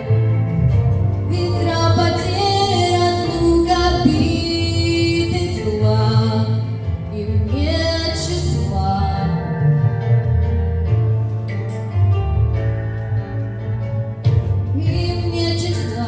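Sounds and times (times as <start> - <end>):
instrumental backing with bass line: 0.0 - 16.0
woman singing slow melody: 1.3 - 9.8, 14.7 - 16.0.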